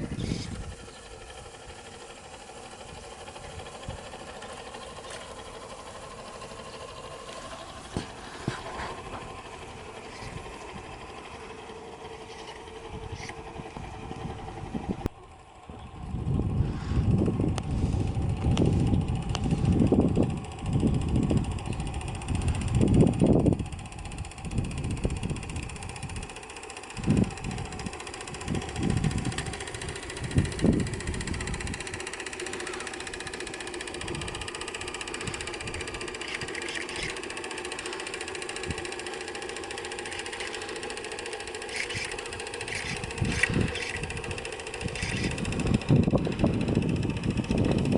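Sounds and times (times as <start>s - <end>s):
wind buffeting microphone: 0.0s - 1.8s, 12.7s - 26.4s, 27.0s - 32.2s, 33.1s - 36.5s, 41.8s - 47.9s
steam engine running: 0.0s - 47.9s.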